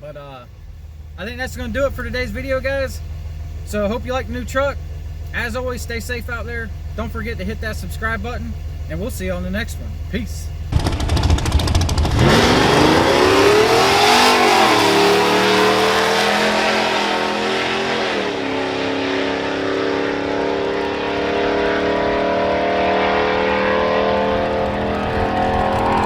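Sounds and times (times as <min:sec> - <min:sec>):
vehicle engine accelerating: 0:09.8 - 0:26.0.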